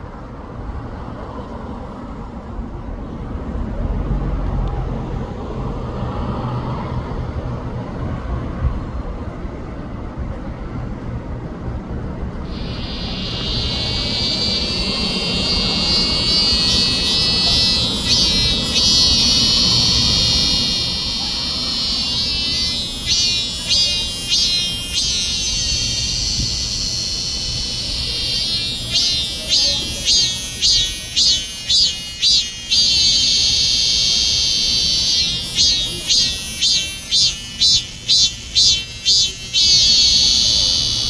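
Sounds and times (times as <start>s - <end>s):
cicada buzzing song: 12.5s - 41.0s.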